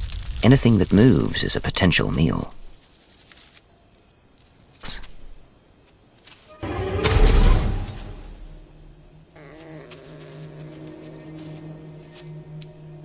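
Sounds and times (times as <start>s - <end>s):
crickets trilling: 0.0s - 13.0s
loud whooshing swell: 6.6s - 9.1s.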